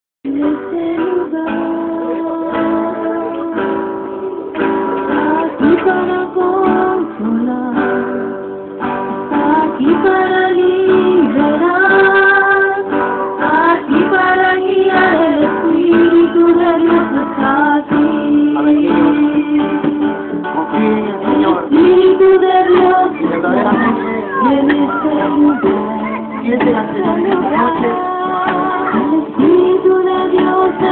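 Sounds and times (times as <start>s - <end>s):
person singing: 0.2s - 8.5s, 9.2s - 30.9s
strummed acoustic guitar: 0.3s - 30.9s.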